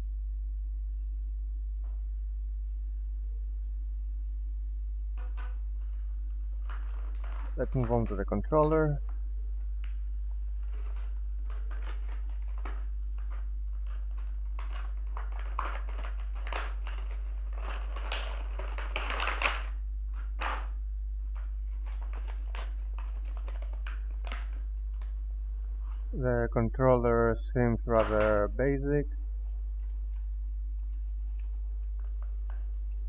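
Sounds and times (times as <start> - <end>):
steady low hum: 0.0 - 33.0
packaging rustling: 5.3 - 20.7, 21.3 - 26.2.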